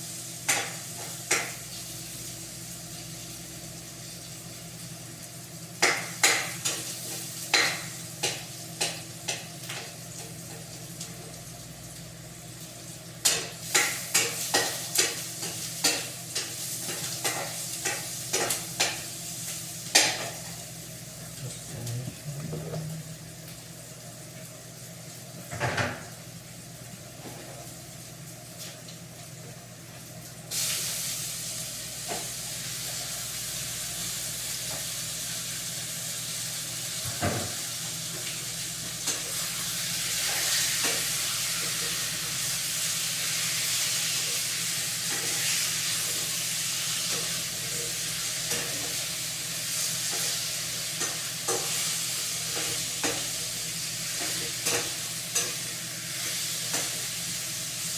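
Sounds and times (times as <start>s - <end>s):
food sizzling in a pan: 0.0s - 57.9s.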